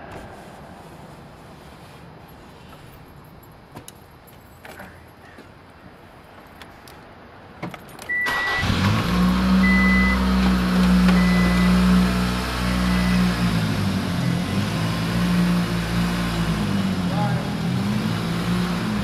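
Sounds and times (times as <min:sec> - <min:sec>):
car engine starting and idling: 0:08.0 - 0:19.0
short high beeps: 0:09.6 - 0:10.2.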